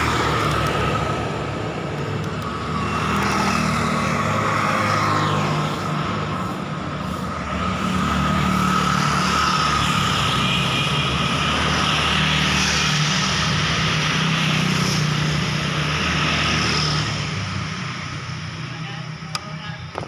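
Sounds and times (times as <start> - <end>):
engine hum: 0.0 - 9.7
tyre and road noise: 0.0 - 20.0.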